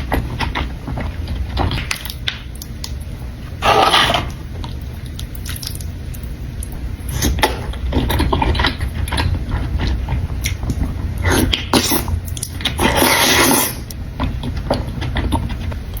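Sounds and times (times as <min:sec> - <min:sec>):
noodle slurping: 0:11.2 - 0:13.9
wet mouth clicks and chewing: 0:11.4 - 0:12.9.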